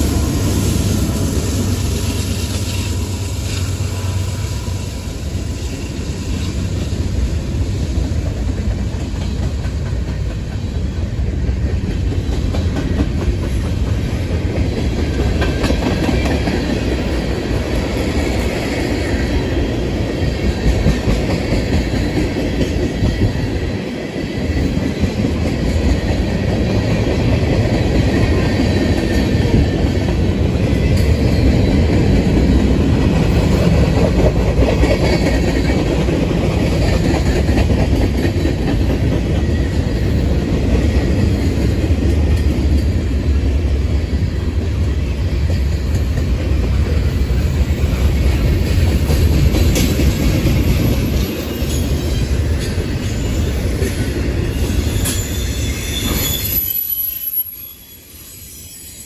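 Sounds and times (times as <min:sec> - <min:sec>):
freight train wheels rumbling on rails: 0:00.0 - 0:59.0.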